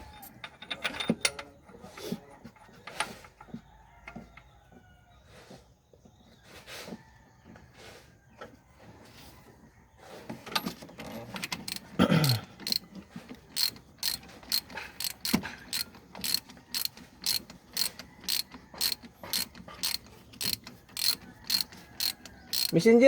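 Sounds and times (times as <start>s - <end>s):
ratchet wrench clicking: 11.5s - 12.8s, 13.5s - 22.9s.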